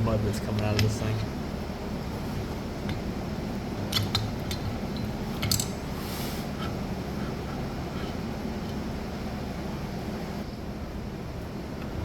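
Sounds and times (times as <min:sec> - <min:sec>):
low shop hum: 0:00.0 - 0:12.0
metal engine parts clinking: 0:03.8 - 0:05.9.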